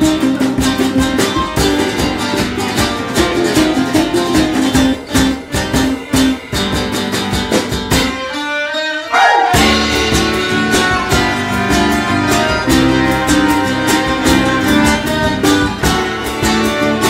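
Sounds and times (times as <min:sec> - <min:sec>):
bass and drums: 0:00.0 - 0:08.4, 0:09.5 - 0:17.0
strummed acoustic guitar: 0:00.0 - 0:17.0
violin: 0:00.0 - 0:17.0
rising slide: 0:09.1 - 0:12.7.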